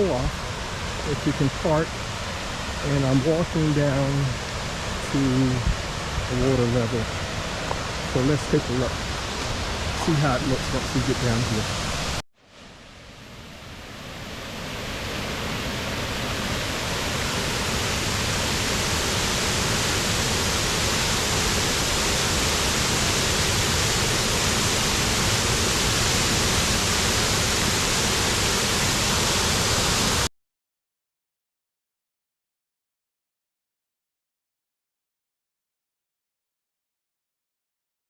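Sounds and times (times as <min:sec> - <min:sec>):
water rushing over spillway: 0:00.0 - 0:12.2, 0:14.4 - 0:30.3.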